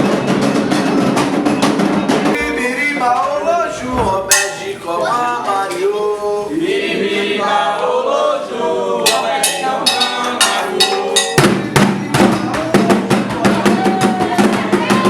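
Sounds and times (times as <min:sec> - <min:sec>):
drums beating: 0:00.0 - 0:05.9, 0:09.0 - 0:15.0
voices chanting: 0:02.4 - 0:15.0
sharp bell strikes: 0:09.1 - 0:12.1.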